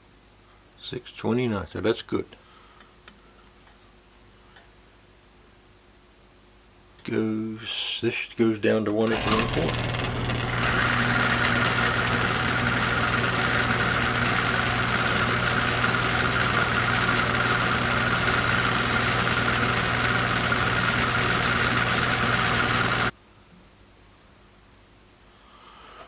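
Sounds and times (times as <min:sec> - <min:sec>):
lathe motor hum: 0:09.1 - 0:23.1
faint regular ticking: 0:09.2 - 0:23.1.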